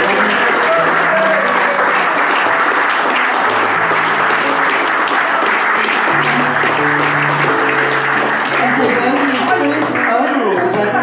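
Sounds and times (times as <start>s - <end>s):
crowd applauding: 0.0s - 11.0s
faint music: 3.6s - 11.0s.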